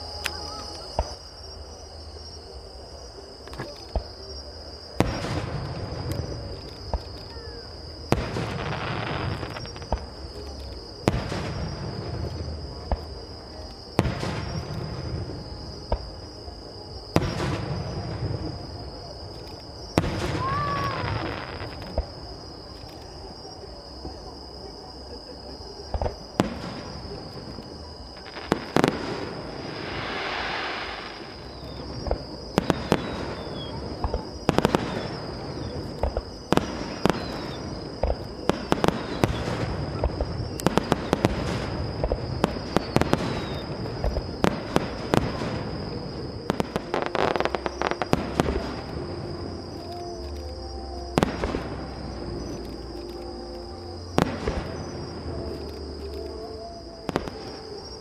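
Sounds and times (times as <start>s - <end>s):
firework crackling: 8.1s - 13.2s, 26.0s - 52.7s
firework hissing whoosh: 29.6s - 31.4s.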